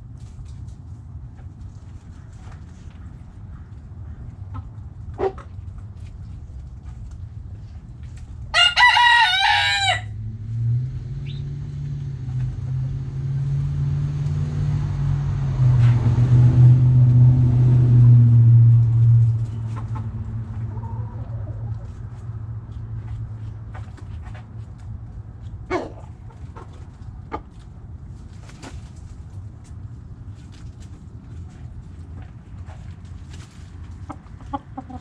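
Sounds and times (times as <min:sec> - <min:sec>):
rooster crowing: 0:08.5 - 0:10.2
low engine hum: 0:09.6 - 0:35.0.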